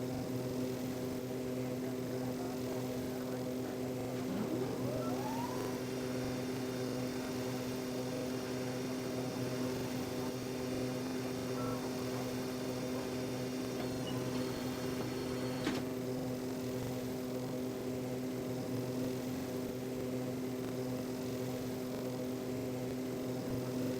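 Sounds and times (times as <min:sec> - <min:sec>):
aeroplane engines droning: 0:01.6 - 0:15.6.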